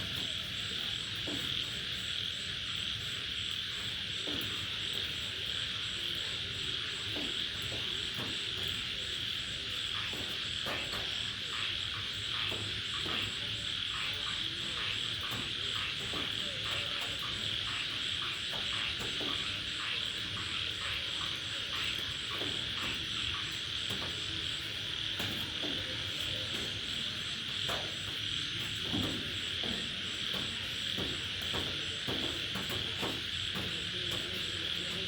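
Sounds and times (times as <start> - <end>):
crickets and night insects: 0.0 - 35.0
high repeating insect chirp: 0.0 - 35.0
raindrops tapping: 0.0 - 35.0.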